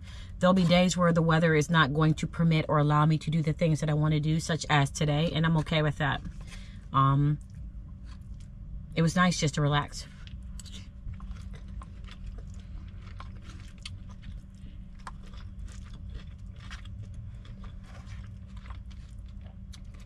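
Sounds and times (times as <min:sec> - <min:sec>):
steady low hum: 0:00.0 - 0:20.0
chewing mouth sounds: 0:10.2 - 0:20.0.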